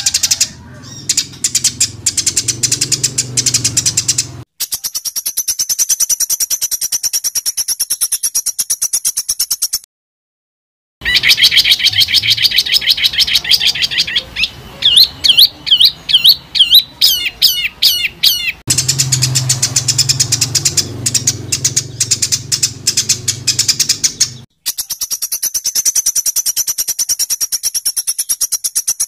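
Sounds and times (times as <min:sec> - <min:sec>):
bird harsh chattering: 0:00.0 - 0:09.8, 0:11.0 - 0:29.0
songbird trilling: 0:00.0 - 0:09.8, 0:11.0 - 0:29.0
bird whistled notes: 0:11.0 - 0:29.0.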